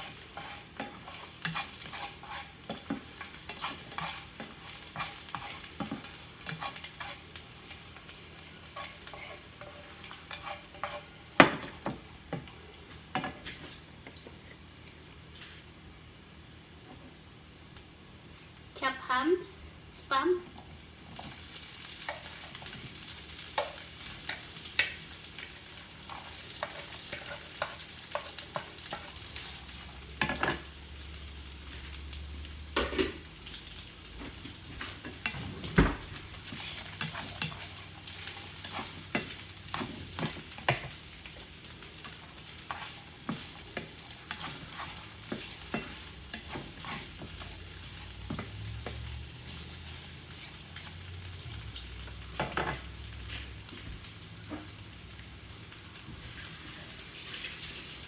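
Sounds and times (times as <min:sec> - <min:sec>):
spatula scraping a pan: 0:00.0 - 0:13.8, 0:21.1 - 0:30.7, 0:34.3 - 0:50.9
meat sizzling in a frying pan: 0:00.0 - 0:18.7, 0:20.1 - 0:58.0.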